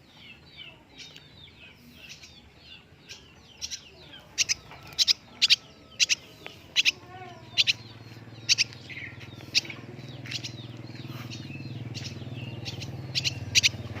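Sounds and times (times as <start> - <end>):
steady low hum: 4.2 - 14.0.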